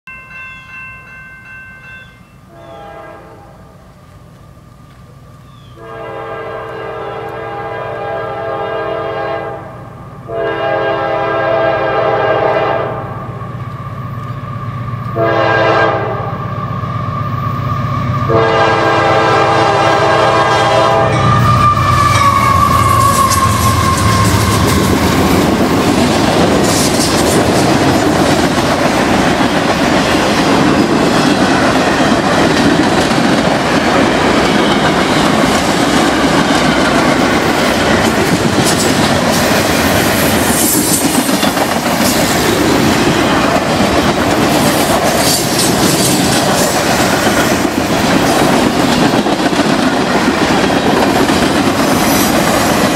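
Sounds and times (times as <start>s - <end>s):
locomotive air horn: 2.5s - 3.7s, 5.8s - 13.2s, 15.2s - 16.4s, 18.3s - 25.2s.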